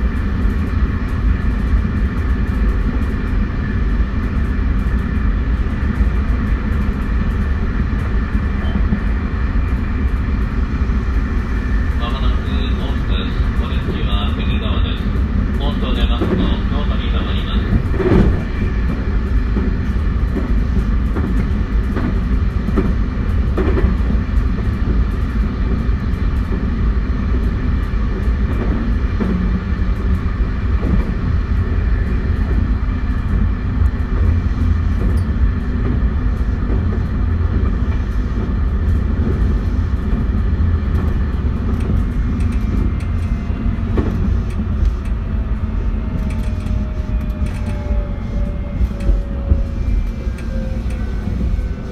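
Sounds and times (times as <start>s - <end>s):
train wheels rumbling on rail: 0.0s - 51.9s
electric train inverter tones: 28.8s - 51.9s.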